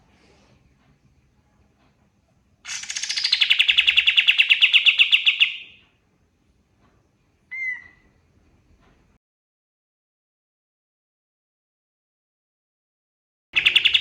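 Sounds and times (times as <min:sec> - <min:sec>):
songbird rattling trill: 0:02.7 - 0:05.8, 0:13.6 - 0:14.0.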